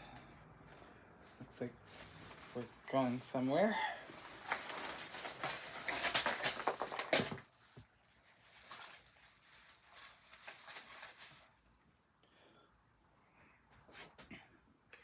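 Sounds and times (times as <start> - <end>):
packaging rustling and crackling: 1.2 - 11.7.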